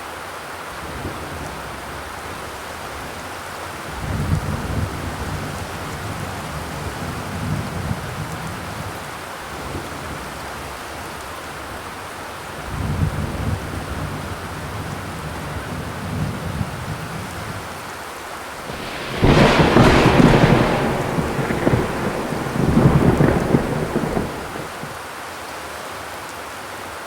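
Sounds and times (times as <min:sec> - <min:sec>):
steady rain falling: 0:00.9 - 0:25.0
low rumble: 0:18.7 - 0:24.9.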